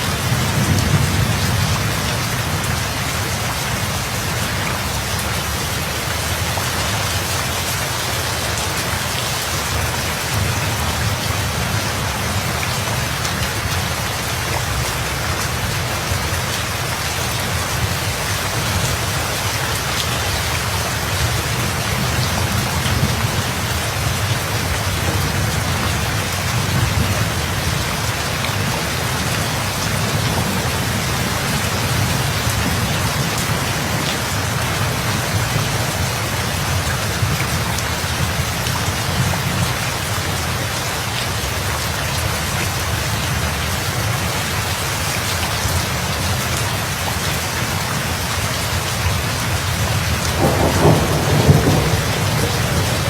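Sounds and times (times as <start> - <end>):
heavy rain pattering: 0.0 - 53.0
low thunder rumble: 22.0 - 37.6, 50.0 - 53.0.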